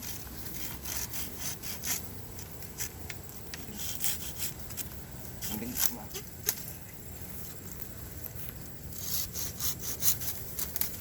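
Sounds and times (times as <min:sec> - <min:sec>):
saw rasping through bamboo: 0:00.0 - 0:02.1, 0:03.7 - 0:04.8, 0:08.9 - 0:11.0.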